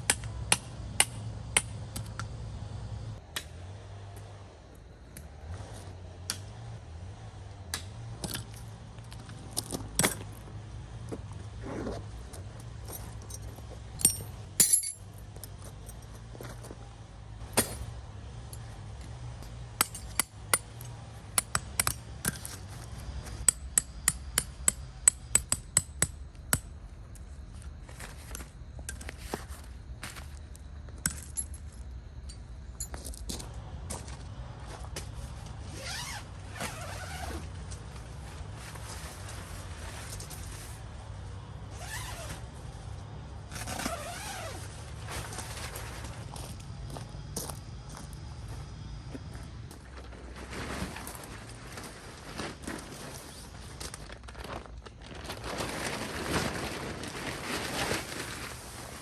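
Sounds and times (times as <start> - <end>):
clinks of small hard objects: 13.2 - 16.1.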